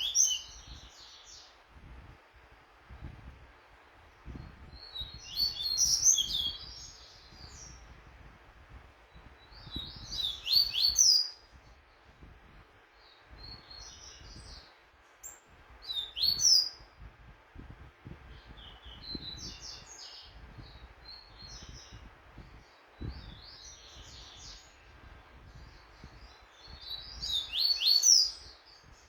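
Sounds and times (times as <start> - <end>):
bird singing high sweeping notes: 4.8 - 7.8, 15.2 - 16.8.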